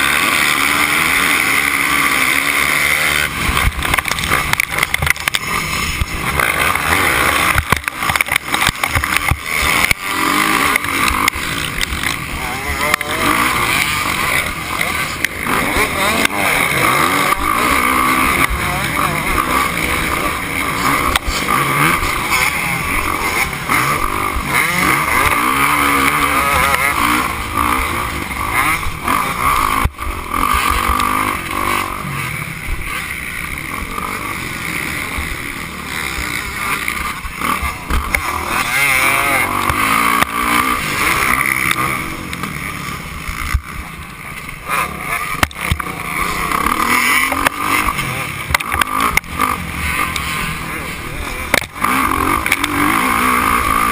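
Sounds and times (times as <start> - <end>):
motocross bike engine revving: 0.0 - 53.9.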